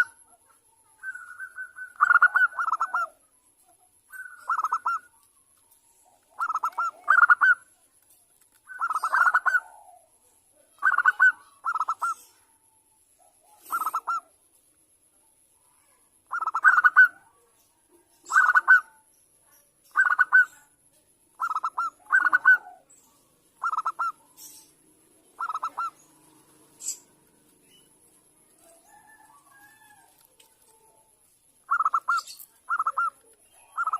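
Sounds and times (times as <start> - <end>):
dove cooing: 0.0 - 3.2, 4.1 - 5.2, 5.9 - 7.7, 8.7 - 12.5, 13.3 - 14.3, 16.3 - 17.4, 18.2 - 19.0, 21.4 - 31.1, 31.7 - 33.9.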